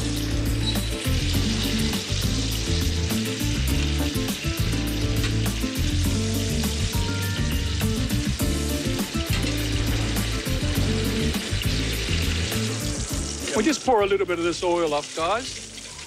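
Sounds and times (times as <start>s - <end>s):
chicken sizzling in a frying pan: 0.0s - 16.0s.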